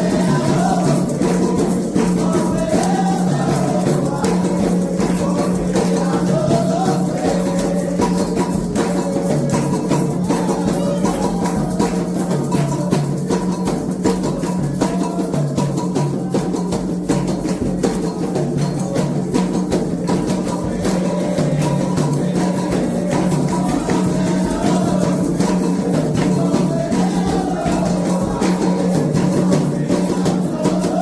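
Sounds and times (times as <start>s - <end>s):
voices chanting: 0.0s - 16.6s, 17.5s - 31.0s
hand drums fast rhythm: 0.0s - 31.0s.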